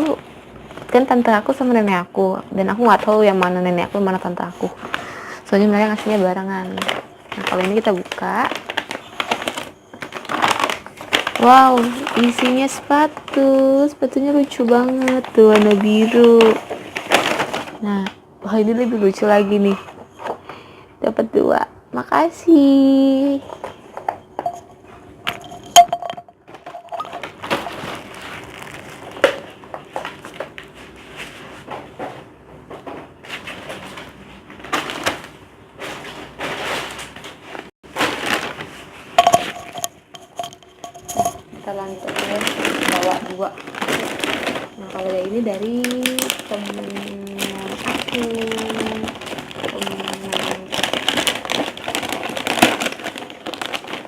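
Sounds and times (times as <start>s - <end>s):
packaging rustling and crinkling: 2.9s - 18.1s, 26.5s - 32.0s, 32.9s - 54.0s
gift wrapping being torn: 45.8s - 54.0s.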